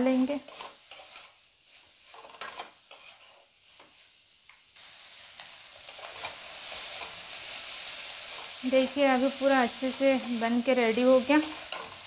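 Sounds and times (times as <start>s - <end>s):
spatula scraping metal pan: 0.0s - 4.0s
prawns sizzling: 0.0s - 12.0s.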